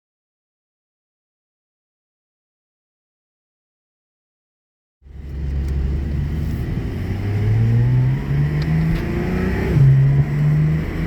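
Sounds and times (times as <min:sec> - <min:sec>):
car engine accelerating: 0:05.0 - 0:11.0.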